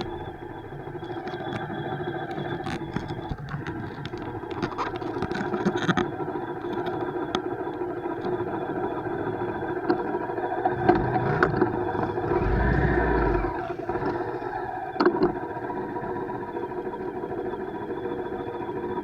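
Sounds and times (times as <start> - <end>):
bike riding hum: 10.4 - 15.3.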